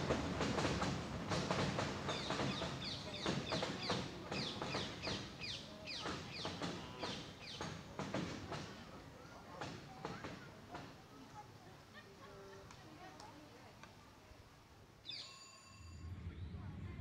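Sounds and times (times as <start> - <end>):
bird chirping: 15.0 - 15.6.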